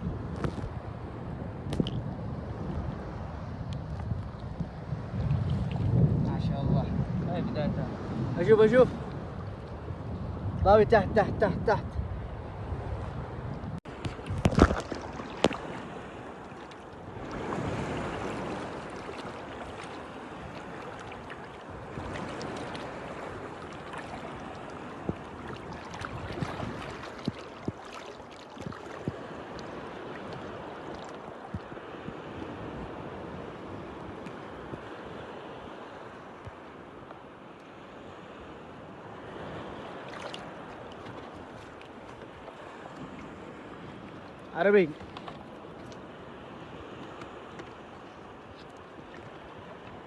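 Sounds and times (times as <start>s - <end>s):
sea water washing and splashing: 13.8s - 50.0s.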